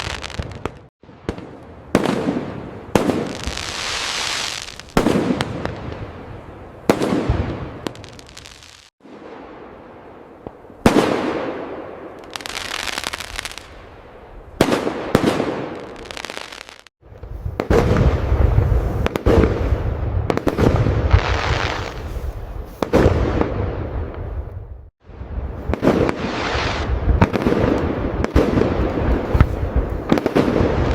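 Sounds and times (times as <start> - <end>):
firework crackling: 0.0 - 0.9, 2.0 - 6.2, 6.9 - 8.9, 12.2 - 13.8, 14.6 - 23.6, 25.5 - 30.9.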